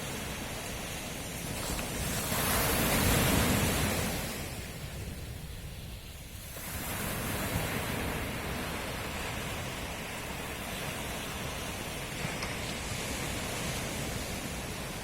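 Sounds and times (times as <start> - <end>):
sea surf washing ashore: 0.0 - 15.0.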